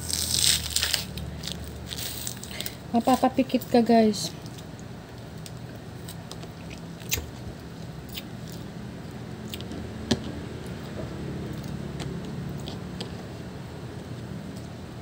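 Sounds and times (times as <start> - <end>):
wet chewing and biting: 4.4 - 9.8.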